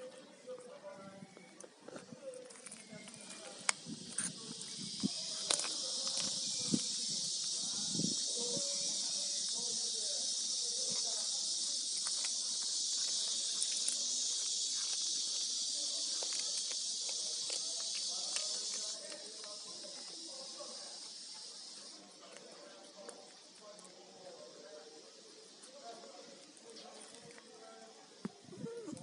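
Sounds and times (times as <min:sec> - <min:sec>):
steady high hiss: 0:02.7 - 0:22.5.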